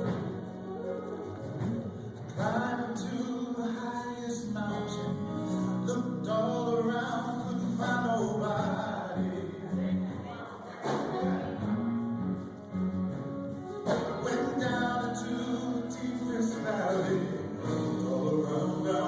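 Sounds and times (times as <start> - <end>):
voices singing a melody: 13.9 - 19.0.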